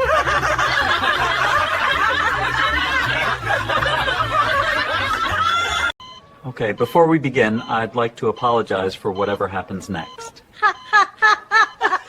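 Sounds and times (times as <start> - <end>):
many people laughing: 0.0 - 6.0, 9.8 - 12.0.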